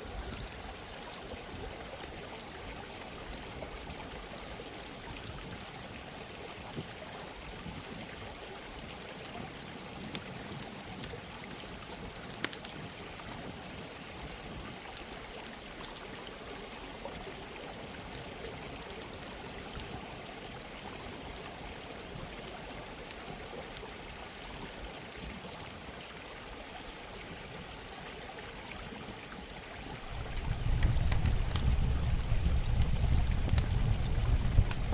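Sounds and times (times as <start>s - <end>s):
running water: 0.0s - 34.9s
campfire crackling: 0.1s - 1.4s, 8.7s - 16.0s, 17.8s - 20.0s, 30.0s - 34.9s
low rumble: 30.1s - 34.9s.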